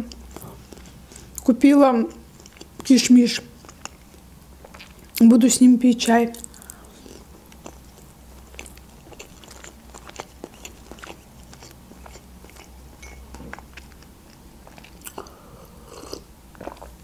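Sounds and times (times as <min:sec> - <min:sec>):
person chewing food: 0:00.0 - 0:01.5, 0:02.1 - 0:02.9, 0:03.5 - 0:05.2, 0:06.4 - 0:17.0.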